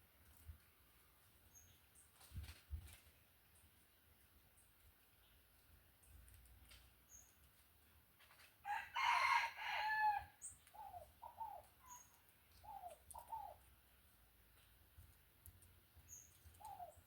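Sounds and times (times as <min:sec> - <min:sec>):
rooster crowing: 0:08.6 - 0:10.4.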